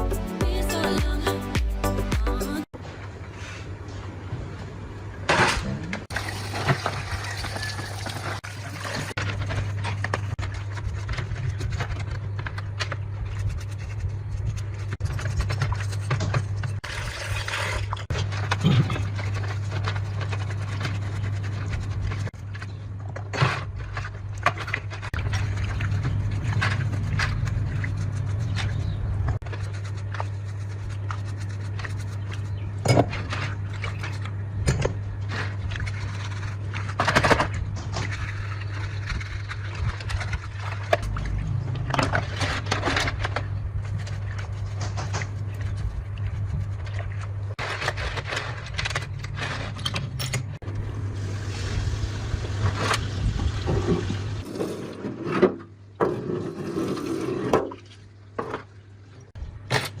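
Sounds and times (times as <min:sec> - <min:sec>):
workshop scraping and knocks: 0:53.6 - 0:57.8.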